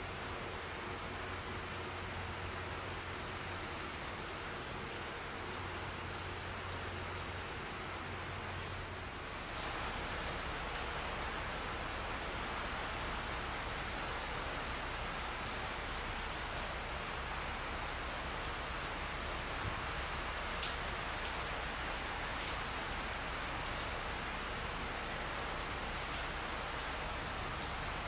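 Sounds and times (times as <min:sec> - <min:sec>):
rain falling on foliage: 0:00.0 - 0:28.0.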